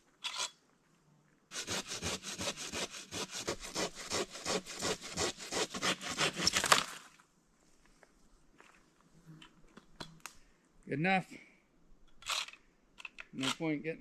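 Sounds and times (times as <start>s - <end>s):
hand saw cutting wood: 1.5s - 7.0s.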